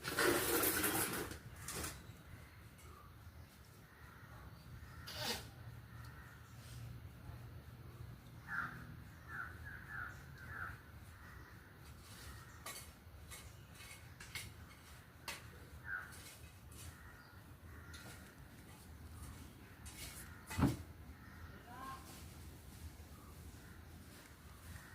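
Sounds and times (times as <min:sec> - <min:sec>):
short bird calls: 0:08.4 - 0:12.5.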